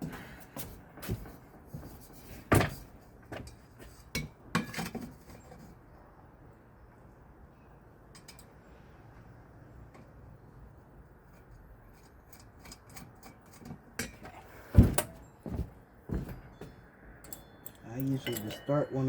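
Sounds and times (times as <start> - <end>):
metal fan parts clicking and knocking: 1.8 - 5.8, 8.1 - 8.7, 9.8 - 19.0.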